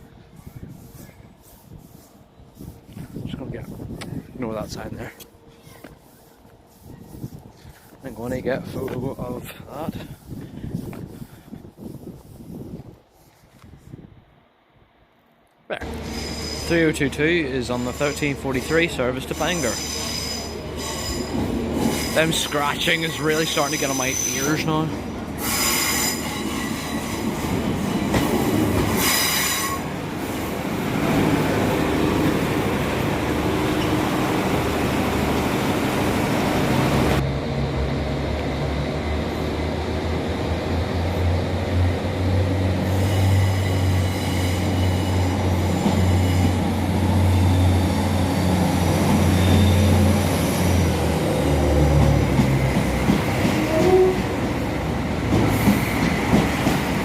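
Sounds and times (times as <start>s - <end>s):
train wheels squealing: 15.9s - 28.1s, 28.9s - 29.9s, 42.8s - 50.8s, 53.4s - 54.3s
diesel engine drone: 30.6s - 42.9s.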